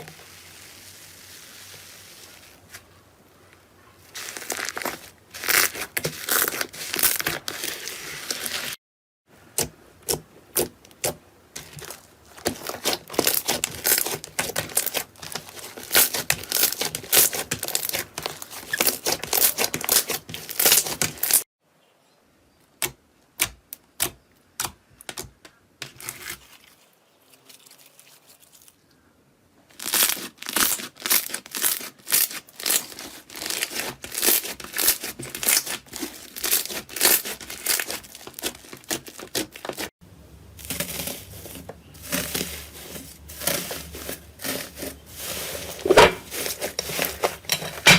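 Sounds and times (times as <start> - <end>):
slime crackling and popping: 10.0 - 21.4, 29.7 - 39.9.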